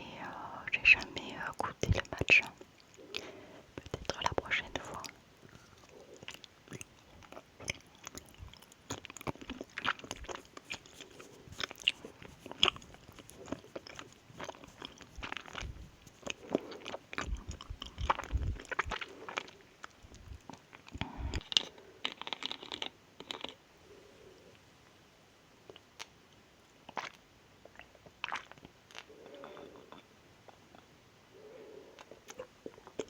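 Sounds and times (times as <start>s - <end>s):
person chewing: 2.4s - 23.6s.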